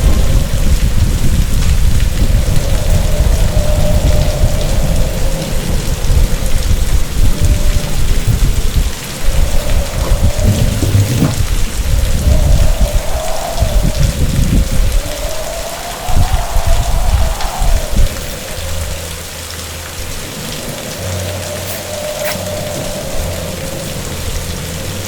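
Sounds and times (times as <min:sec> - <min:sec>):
heavy rain: 0:00.0 - 0:25.0
thunder rumbling: 0:00.0 - 0:25.0
wind howling: 0:00.0 - 0:25.0.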